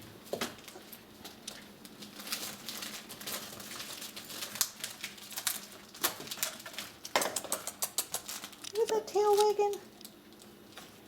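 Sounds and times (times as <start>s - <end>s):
puppies clicking and tapping: 0.3s - 10.9s.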